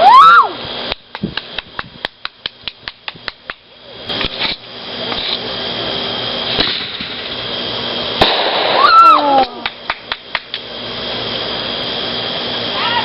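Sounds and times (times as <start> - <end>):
fireworks hissing spray with crackle: 0.0 - 13.0
firework pops: 0.9 - 5.4, 6.5 - 7.3, 8.2 - 10.7.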